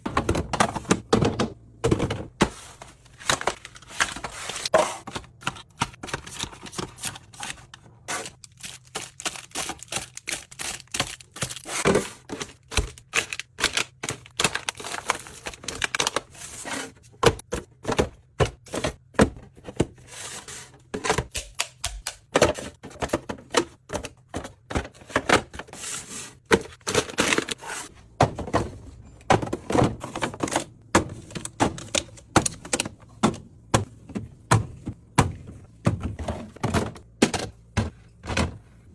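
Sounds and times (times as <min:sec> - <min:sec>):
containers set down on fridge shelves: 0:00.0 - 0:05.9, 0:28.2 - 0:38.9.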